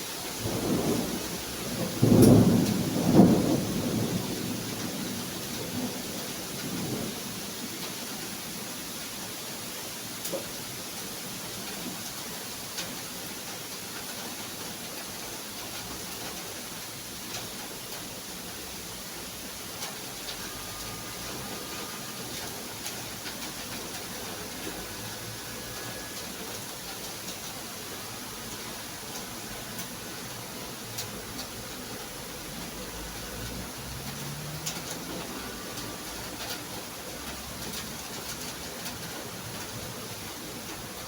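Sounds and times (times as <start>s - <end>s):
steady rain hiss: 0.0s - 41.0s
raindrops ticking: 19.7s - 41.0s.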